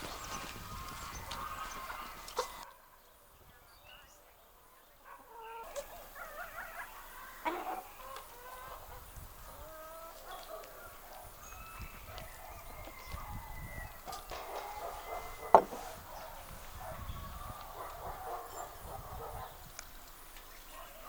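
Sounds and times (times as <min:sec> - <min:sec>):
chickens clucking: 0:00.0 - 0:02.7, 0:05.4 - 0:19.7
sharp knock: 0:15.5 - 0:15.8.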